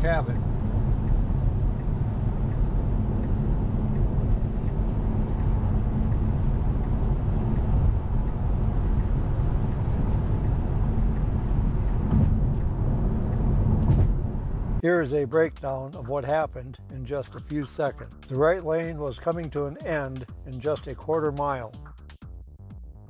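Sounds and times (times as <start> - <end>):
car road and tyre noise: 0.0 - 14.8.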